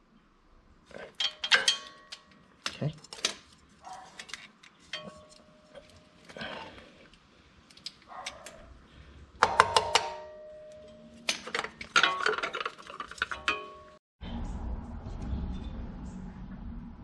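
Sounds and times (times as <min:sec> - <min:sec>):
metal tools clinking and clattering: 0:00.9 - 0:06.7, 0:09.4 - 0:14.0.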